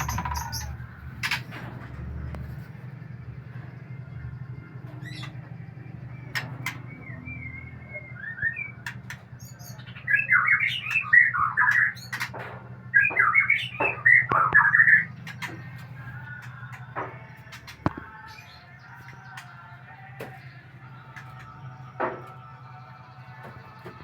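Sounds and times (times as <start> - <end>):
songbird warbling: 0.0 - 1.4, 12.9 - 15.7.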